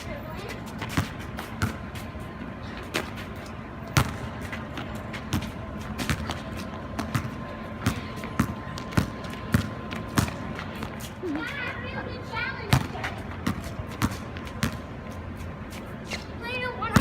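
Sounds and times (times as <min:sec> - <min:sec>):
basketball bouncing: 0:00.7 - 0:01.9, 0:03.9 - 0:11.0, 0:12.7 - 0:14.9.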